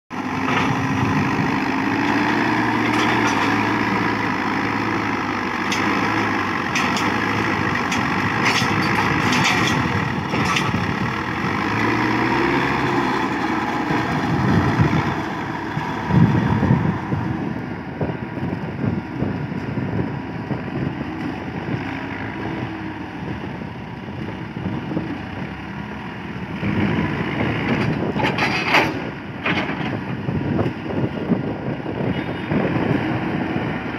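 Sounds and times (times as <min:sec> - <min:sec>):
backhoe diesel engine working: 0:00.1 - 0:33.9.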